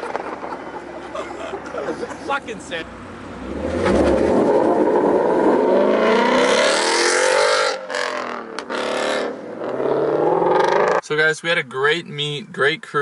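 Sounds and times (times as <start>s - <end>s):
car engine revving hard: 3.2s - 11.0s.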